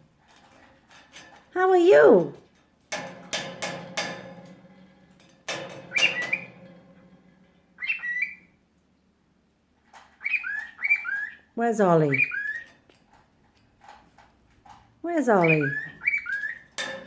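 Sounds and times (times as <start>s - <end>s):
sharp ringing knocks: 2.9s - 7.8s, 16.7s - 17.0s
parrot squawking and chirping: 5.9s - 6.5s, 7.8s - 8.6s, 10.1s - 12.8s, 15.3s - 16.8s.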